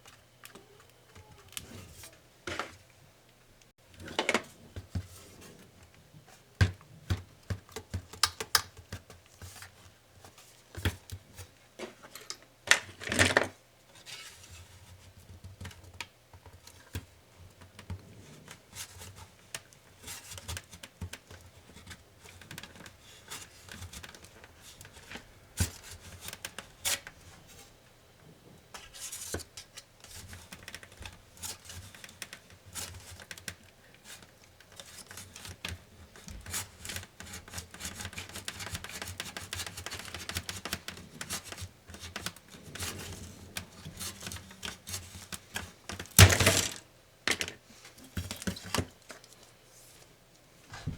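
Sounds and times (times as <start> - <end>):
clicks and taps of plastic parts: 6.6 - 9.6.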